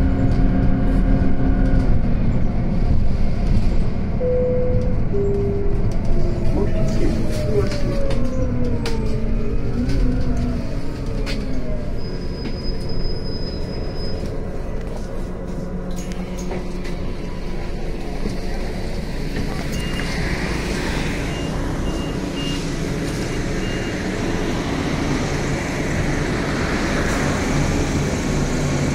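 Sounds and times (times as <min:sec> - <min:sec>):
bus engine rumbling with rattles: 0:00.0 - 0:28.9
short high beeps: 0:04.2 - 0:05.8.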